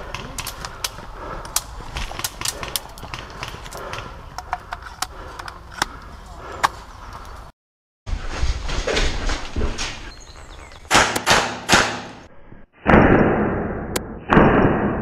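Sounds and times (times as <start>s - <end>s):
airsoft gun shots: 10.9s - 12.3s.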